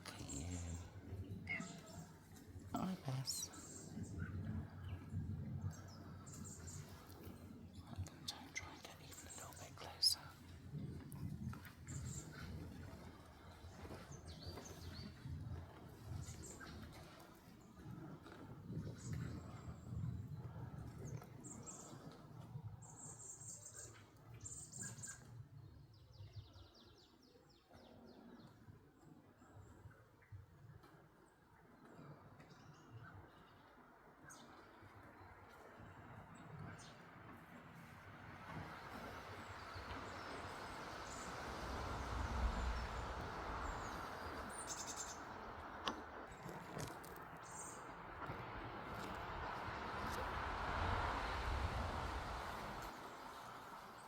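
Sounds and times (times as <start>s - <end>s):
small birds chirping: 0.0s - 10.4s, 42.1s - 48.0s
faint low rumble: 0.0s - 22.1s, 35.0s - 54.0s.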